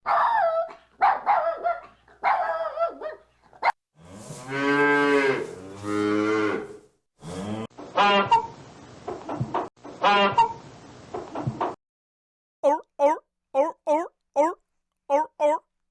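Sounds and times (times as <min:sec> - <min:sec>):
cow mooing: 0:04.0 - 0:07.7
hen clucking: 0:07.9 - 0:08.6, 0:10.0 - 0:10.6.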